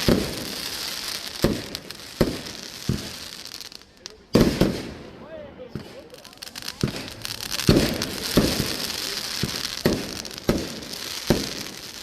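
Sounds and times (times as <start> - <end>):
fireworks banging: 0.0 - 12.0
fireworks crackling fizz: 0.0 - 12.0.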